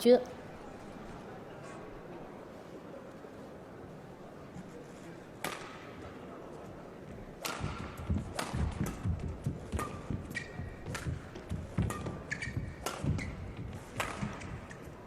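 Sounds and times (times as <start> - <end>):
rackets striking shuttlecock: 5.4 - 6.0, 7.4 - 14.9
footsteps thudding on court: 7.6 - 14.7.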